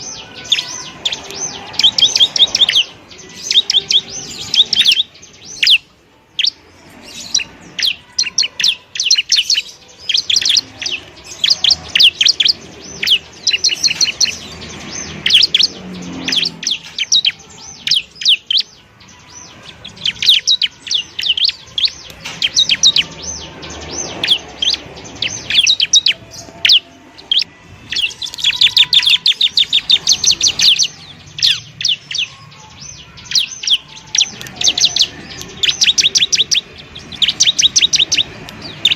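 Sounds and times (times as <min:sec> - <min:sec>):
bird singing high chirps: 0:00.0 - 0:38.9.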